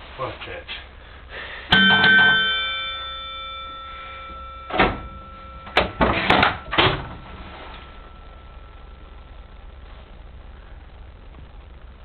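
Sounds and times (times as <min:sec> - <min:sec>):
metallic clang ringing: 0:01.7 - 0:09.0
train doors slamming: 0:04.6 - 0:07.4.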